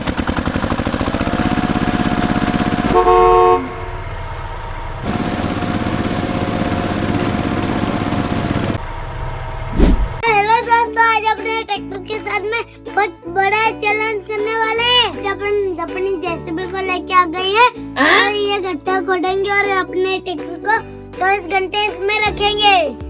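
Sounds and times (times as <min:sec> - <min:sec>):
vehicle engine puttering: 0:00.0 - 0:12.5
horn honk: 0:02.9 - 0:04.2
short rising sweep: 0:08.8 - 0:10.2.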